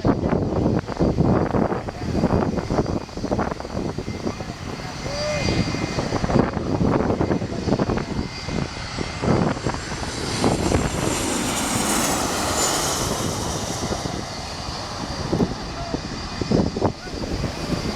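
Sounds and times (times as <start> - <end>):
jet engines with high whine: 0.0 - 17.9.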